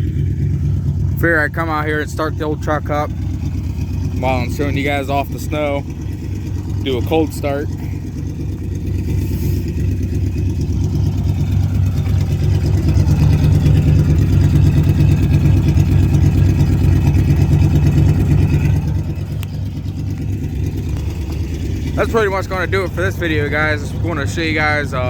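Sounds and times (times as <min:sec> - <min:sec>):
truck engine running: 0:00.0 - 0:25.0.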